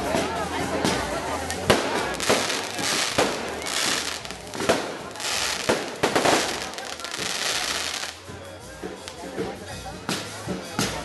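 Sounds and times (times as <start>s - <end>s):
firework bangs: 0.8s - 8.2s
crackling hiss: 1.4s - 8.2s.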